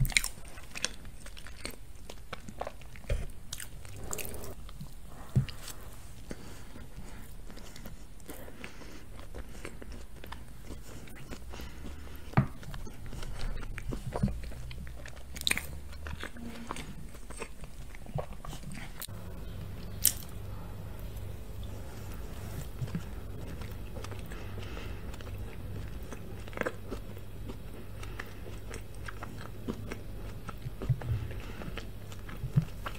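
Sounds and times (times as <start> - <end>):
chewing and mouth sounds: 0.0 - 32.9.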